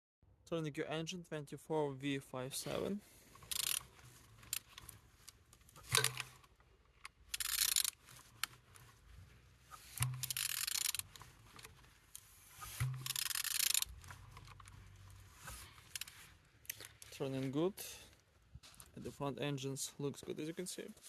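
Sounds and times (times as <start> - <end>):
engine rasping as turned by hand: 3.3 - 5.0, 9.7 - 16.8.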